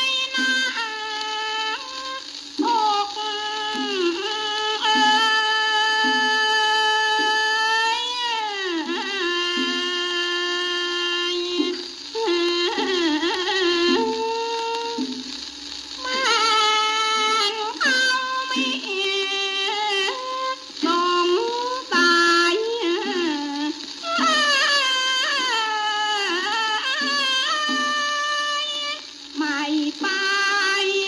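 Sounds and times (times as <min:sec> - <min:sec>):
woman singing long wavering notes: 0:17.2 - 0:28.7, 0:29.4 - 0:31.0.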